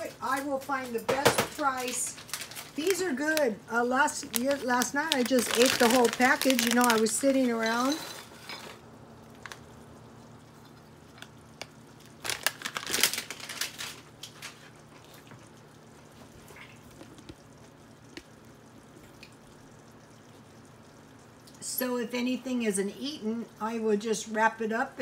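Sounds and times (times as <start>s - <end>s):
food packaging crinkling: 1.5s - 8.7s, 9.3s - 9.7s, 11.1s - 15.2s.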